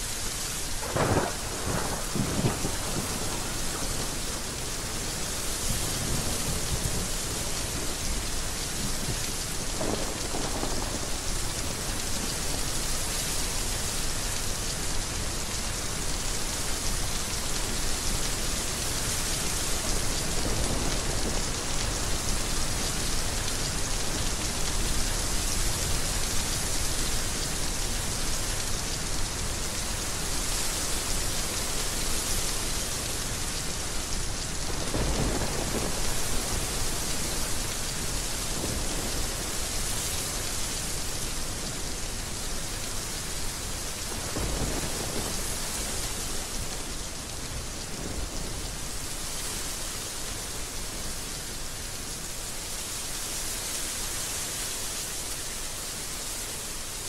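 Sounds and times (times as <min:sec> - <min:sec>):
heavy rain: 0:00.0 - 0:57.0
thunder rumbling: 0:00.8 - 0:04.6, 0:09.8 - 0:12.6, 0:34.6 - 0:37.6, 0:44.1 - 0:46.0.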